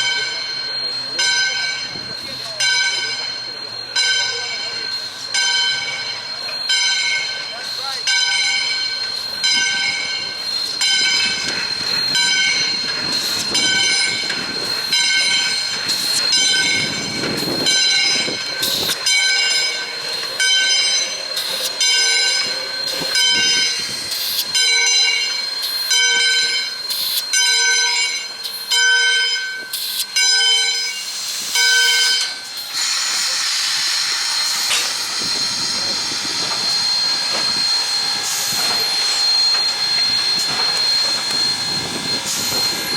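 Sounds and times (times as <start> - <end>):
steam locomotive bell ringing: 0.0 - 42.9
hiss of steam: 15.6 - 19.0, 22.4 - 24.6, 30.9 - 42.9.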